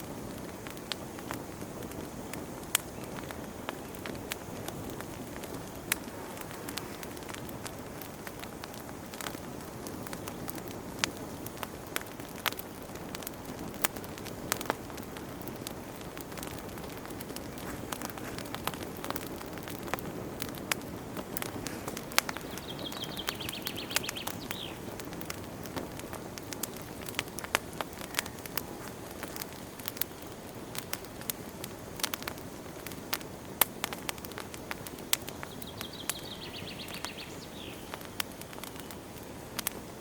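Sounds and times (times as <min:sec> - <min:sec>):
wood fire crackling: 0:00.0 - 0:40.0
bird trilling: 0:22.3 - 0:24.8.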